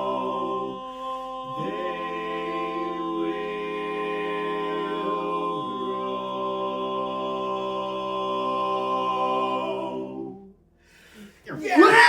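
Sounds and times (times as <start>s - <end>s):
male quartet singing a cappella: 0.0s - 10.5s.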